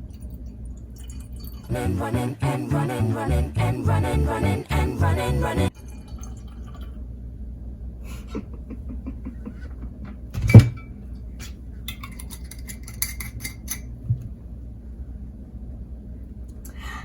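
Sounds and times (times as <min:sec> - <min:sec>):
glassware clinking: 0:10.4 - 0:11.0, 0:11.9 - 0:13.9.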